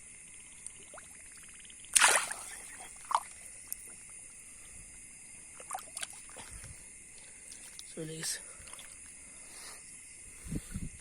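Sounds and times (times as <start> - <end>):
high insect trill: 0.0 - 11.0
splashes in shallow water: 1.9 - 3.3.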